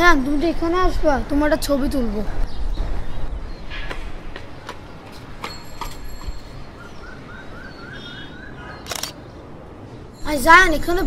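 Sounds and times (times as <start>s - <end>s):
bird chirping rising notes: 6.5s - 9.4s.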